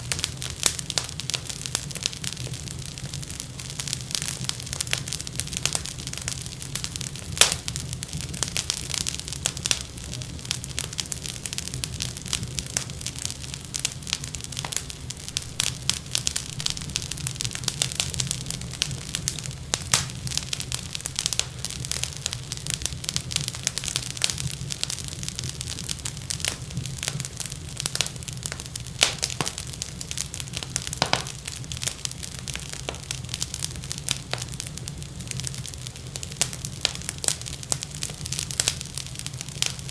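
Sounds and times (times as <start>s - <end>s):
wood fire crackling and popping: 0.0s - 39.9s
low rumble: 14.2s - 24.9s.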